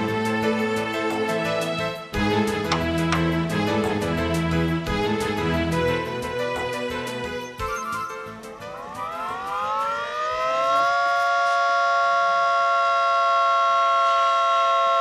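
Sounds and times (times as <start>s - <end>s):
warning siren winding up: 7.6s - 15.0s.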